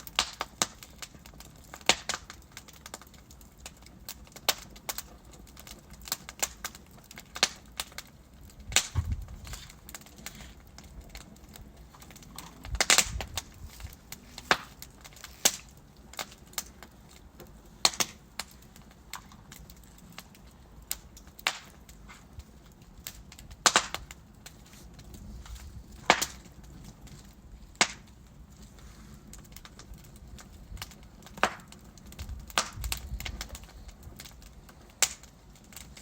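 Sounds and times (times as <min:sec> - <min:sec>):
fireplace logs crackling: 0:00.0 - 0:36.0
low rumble of flames: 0:00.0 - 0:36.0.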